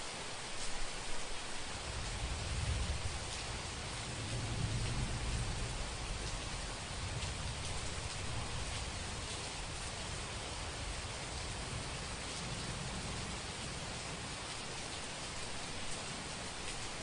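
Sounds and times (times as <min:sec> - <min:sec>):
heavy rain hissing: 0:00.0 - 0:17.0
distant thunder rumble: 0:02.1 - 0:09.8.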